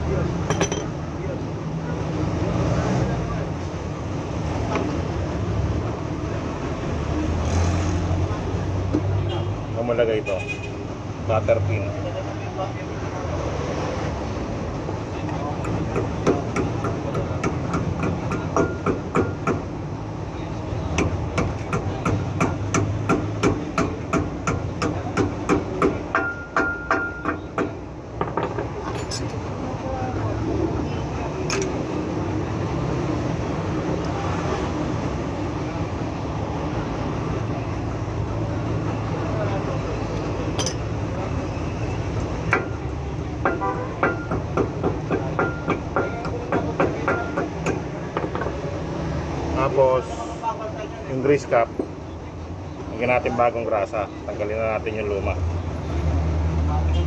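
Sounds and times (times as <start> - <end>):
metal-on-metal taps ringing: 0.5 - 1.0, 40.6 - 40.8
hammer tapping on steel: 15.6 - 19.7, 21.0 - 29.3, 43.4 - 48.6.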